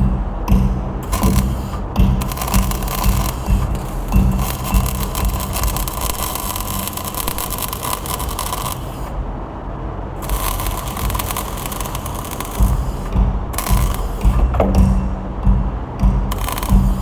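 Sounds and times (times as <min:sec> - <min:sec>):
steady low hum: 0:00.0 - 0:17.0
arc welding crackle and sizzle: 0:01.0 - 0:09.4, 0:10.2 - 0:15.0, 0:16.3 - 0:17.0.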